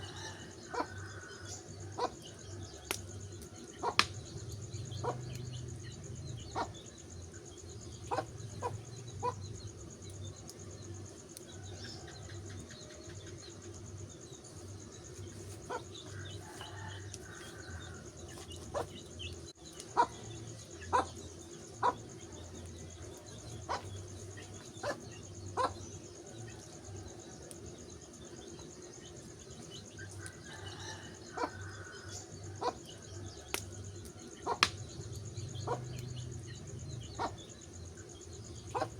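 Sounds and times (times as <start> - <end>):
wood fire crackling and popping: 2.8 - 6.3, 33.5 - 36.4.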